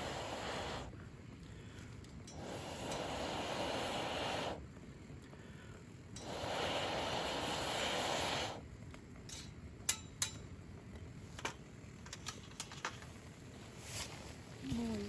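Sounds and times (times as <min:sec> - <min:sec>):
rushing hiss: 0:00.0 - 0:00.9, 0:02.3 - 0:04.6, 0:06.2 - 0:08.7.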